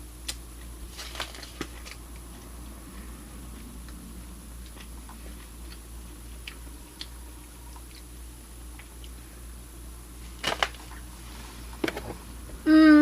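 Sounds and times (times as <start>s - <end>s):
low hum: 0.0s - 13.0s
person chewing: 0.2s - 9.2s.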